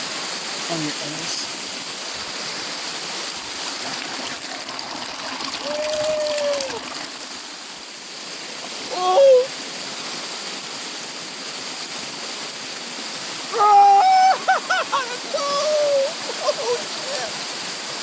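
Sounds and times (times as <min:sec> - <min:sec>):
waterfall rushing: 0:00.0 - 0:18.0
shouted calls: 0:05.6 - 0:06.9, 0:13.5 - 0:17.5.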